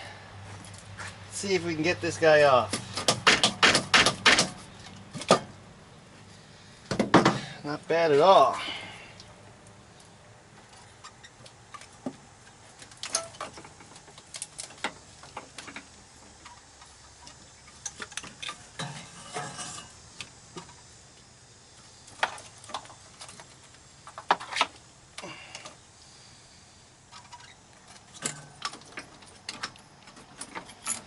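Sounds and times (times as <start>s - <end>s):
metal tools clinking: 17.8s - 20.0s, 30.4s - 31.0s.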